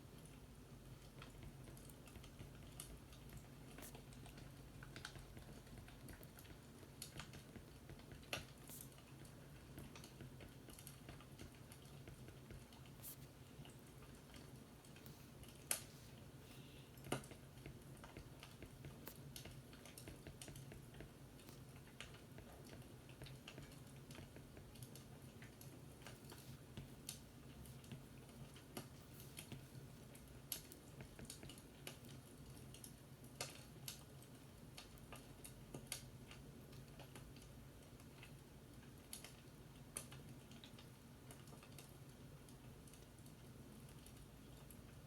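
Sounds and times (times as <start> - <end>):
fireplace crackling and popping: 1.2 - 45.0.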